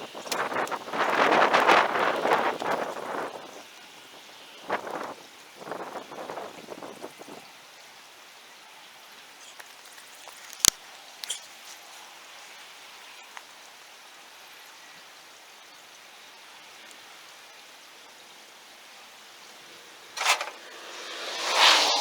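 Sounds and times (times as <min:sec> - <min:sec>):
louder rushes: 0:19.7 - 0:22.0.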